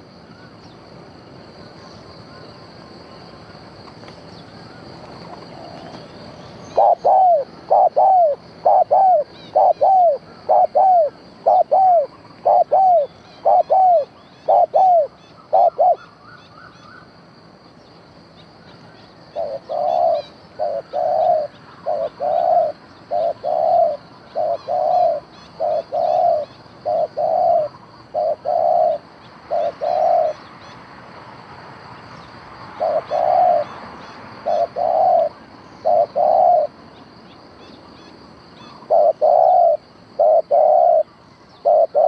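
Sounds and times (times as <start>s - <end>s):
doves cooing: 5.1s - 16.7s, 19.4s - 30.4s, 32.8s - 33.7s, 34.4s - 36.8s, 38.6s - 42.0s.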